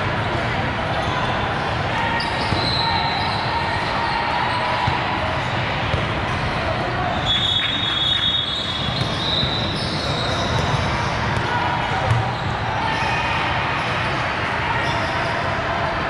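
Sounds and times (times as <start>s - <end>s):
basketball bouncing on court: 8.8s - 11.5s.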